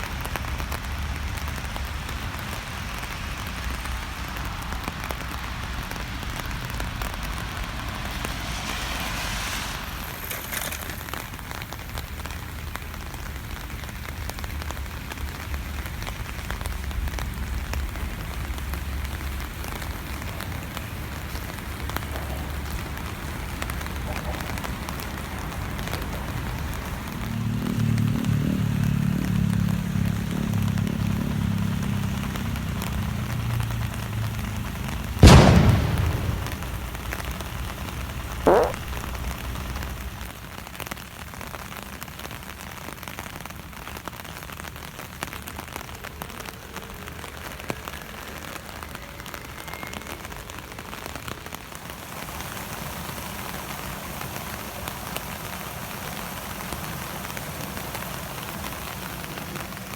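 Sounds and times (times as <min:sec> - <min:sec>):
steady rain falling: 0:00.0 - 0:59.9
sharp loud thump: 0:35.2 - 0:37.1, 0:38.5 - 0:39.2.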